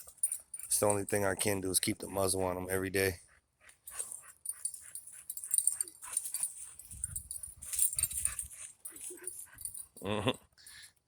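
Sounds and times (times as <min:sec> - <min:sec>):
dogs breathing hard and snuffling: 0:00.0 - 0:01.2, 0:03.2 - 0:10.0.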